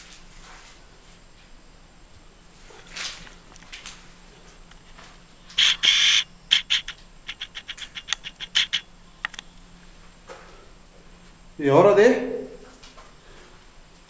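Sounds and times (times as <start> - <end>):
bird screeching: 5.6 - 8.9
short sharp bird calls: 5.6 - 8.9.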